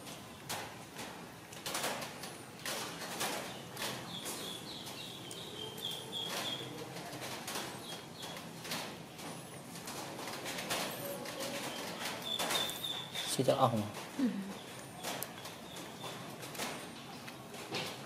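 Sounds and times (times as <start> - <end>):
sharp clicks and rustles: 0.0 - 18.0
bird chirping high: 11.6 - 13.3.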